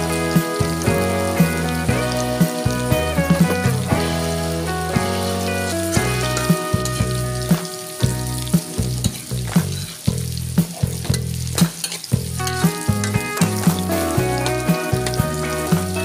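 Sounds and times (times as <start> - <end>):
chicken sizzling in a wok: 0.0 - 16.0
metal spatula scraping a pan: 9.0 - 10.1, 10.9 - 13.6.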